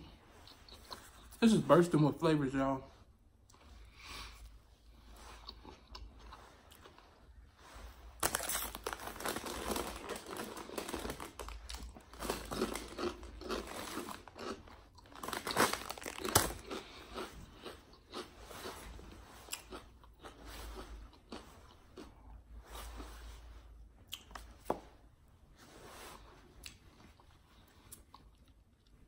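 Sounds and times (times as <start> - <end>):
person chewing crunchy food: 5.0 - 7.3, 8.2 - 22.3.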